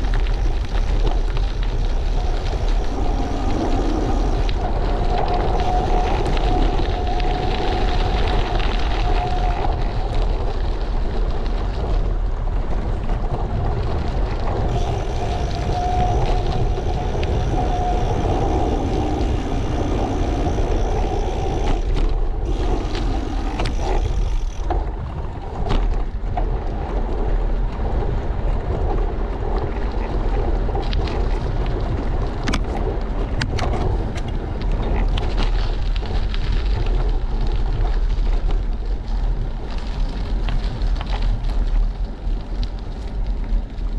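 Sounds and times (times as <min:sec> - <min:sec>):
faint wavering whine: 0:00.0 - 0:10.0, 0:14.7 - 0:24.7
bicycle tyre road noise: 0:00.0 - 0:43.9
wind buffeting microphone: 0:00.0 - 0:43.9.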